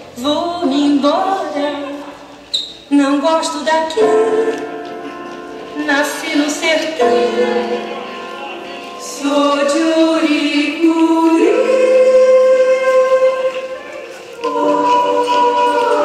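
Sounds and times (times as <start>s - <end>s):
choir singing held notes: 4.0s - 16.0s.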